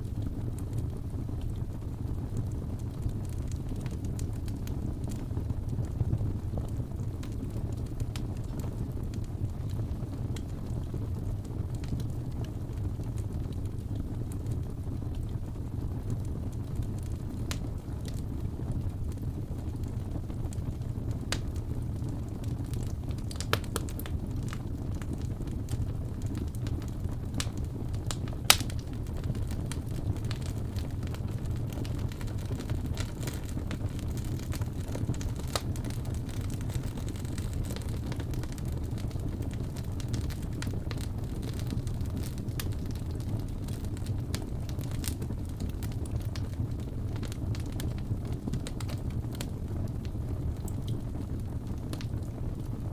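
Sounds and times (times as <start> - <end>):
low rumble of flames: 0.0 - 52.9
wood fire crackling: 0.0 - 52.9
sharp pops of fire: 22.4 - 49.6.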